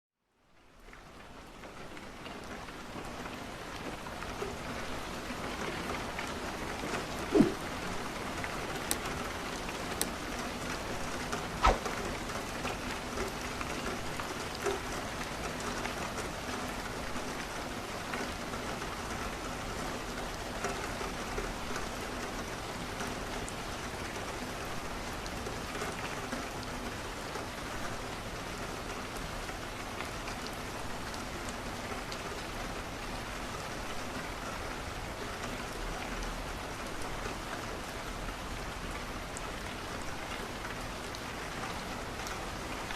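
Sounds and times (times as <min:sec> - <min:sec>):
rain on a window: 0:00.2 - 0:42.9
wood fire crackling: 0:11.6 - 0:11.9.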